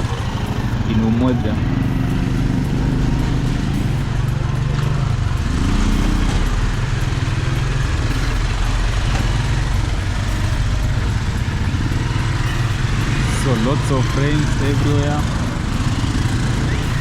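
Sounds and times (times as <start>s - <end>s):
tyres on wet road: 0.0s - 17.0s
vehicle engine humming: 0.0s - 17.0s.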